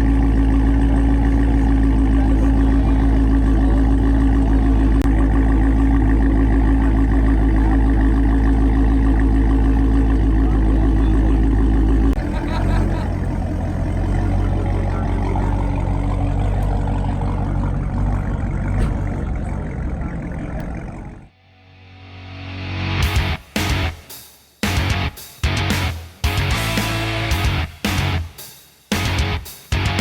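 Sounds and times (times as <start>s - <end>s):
car exhaust rumble: 0.0s - 21.4s.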